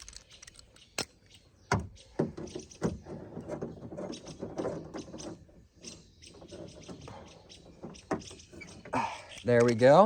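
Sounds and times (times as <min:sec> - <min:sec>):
tools and parts rattling: 0:00.0 - 0:01.1
small clicks and scraping: 0:00.0 - 0:01.4.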